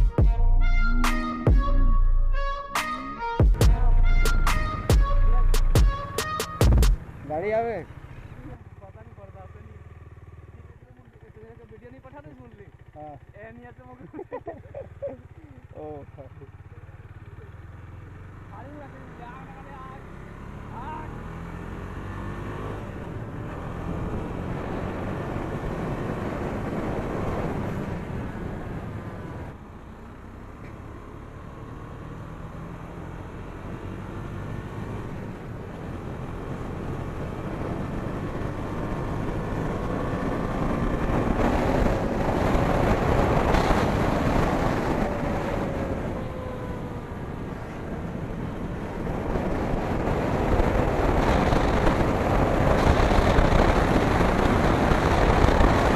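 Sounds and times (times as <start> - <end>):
motorcycle engine running: 3.4 - 31.4, 32.7 - 55.9
wind noise on microphone: 37.6 - 55.9.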